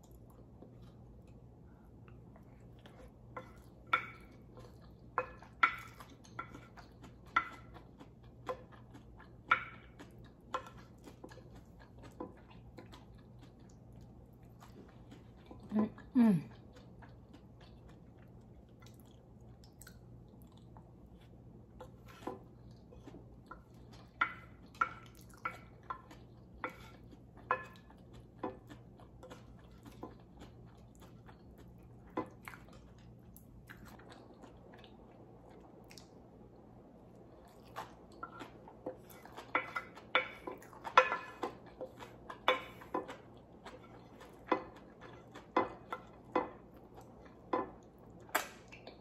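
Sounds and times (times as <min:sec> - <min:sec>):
chewing mouth clicks and smacks: 0:16.7 - 0:21.3, 0:27.1 - 0:36.2, 0:47.0 - 0:49.0.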